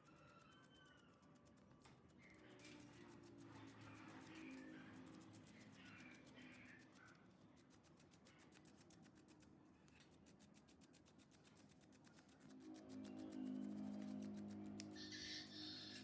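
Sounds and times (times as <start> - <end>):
faint bird calls: 15.0 - 16.0.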